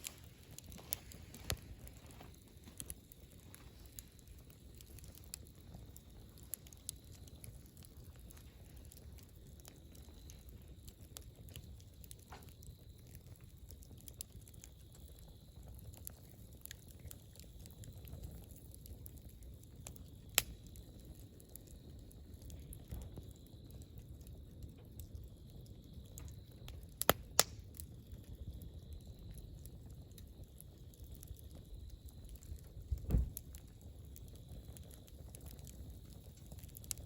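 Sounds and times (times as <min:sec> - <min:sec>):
campfire crackling and popping: 0:00.0 - 0:37.0
low fire rumble: 0:00.0 - 0:37.0.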